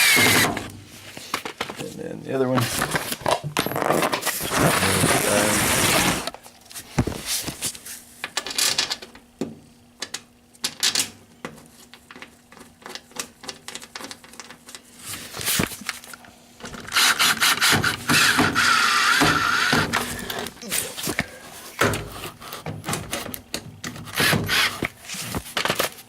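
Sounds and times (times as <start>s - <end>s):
screwdriver scraping and rubbing: 16.7s - 23.3s, 24.0s - 25.9s.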